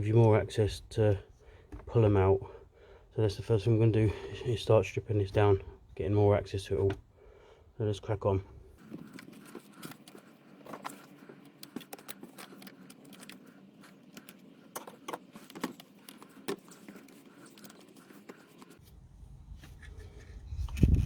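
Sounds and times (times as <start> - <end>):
hands clicking and scraping hoses: 8.8 - 18.8.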